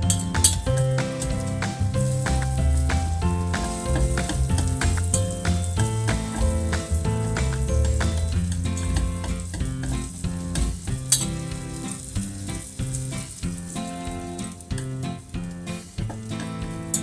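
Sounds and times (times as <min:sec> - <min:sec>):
background music with held notes: 0:00.0 - 0:17.0.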